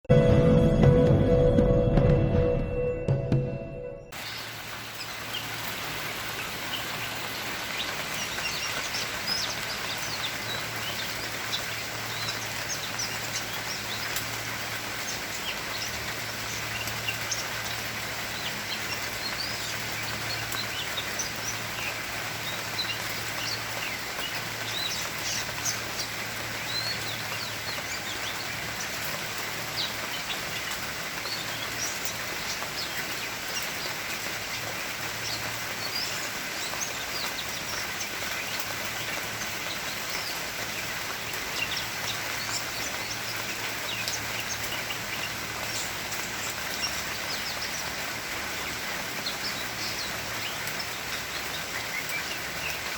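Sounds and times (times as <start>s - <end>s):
low hum: 0.1s - 4.2s
rain hiss: 4.1s - 52.9s.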